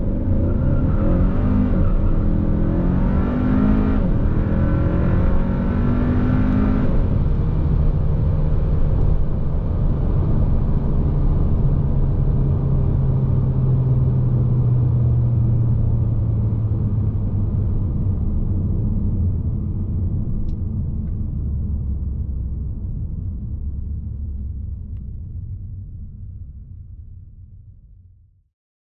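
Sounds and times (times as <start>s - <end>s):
car engine revving: 0.0s - 9.3s
engine and road drone: 0.0s - 27.5s.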